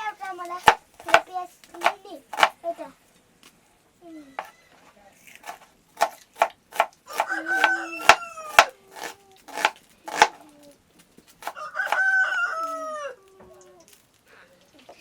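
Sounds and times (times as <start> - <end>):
rooster crowing: 7.1 - 8.8, 11.5 - 13.3.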